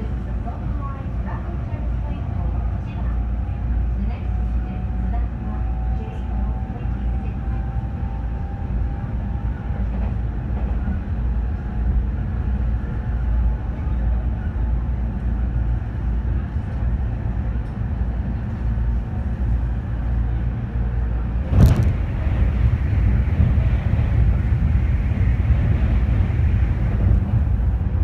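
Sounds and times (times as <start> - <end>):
train wheels rumbling on rails: 0.0 - 28.0
loud rush of noise: 21.4 - 28.0.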